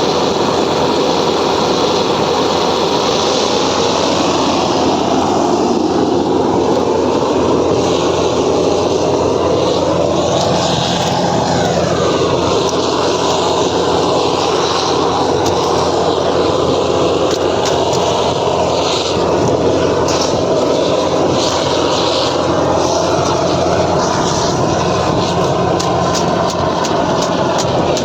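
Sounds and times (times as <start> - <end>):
torch flame rushing: 0.0 - 28.0.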